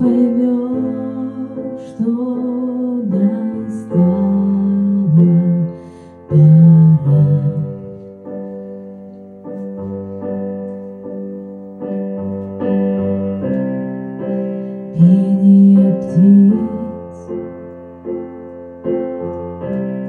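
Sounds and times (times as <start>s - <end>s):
woman singing a slow ballad: 0.0s - 8.2s, 14.9s - 17.5s
piano chords: 0.0s - 20.0s.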